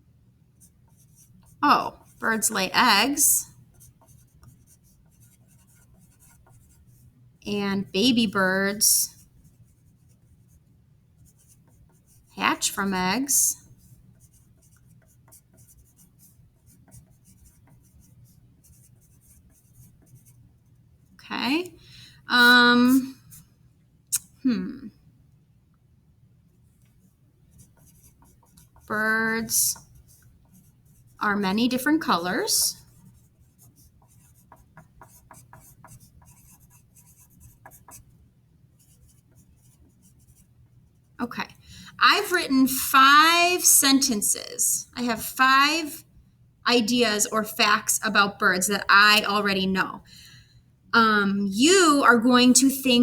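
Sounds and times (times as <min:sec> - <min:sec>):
pen scratching on paper: 0:00.6 - 0:07.1, 0:11.2 - 0:20.4, 0:27.5 - 0:38.1, 0:38.8 - 0:40.5.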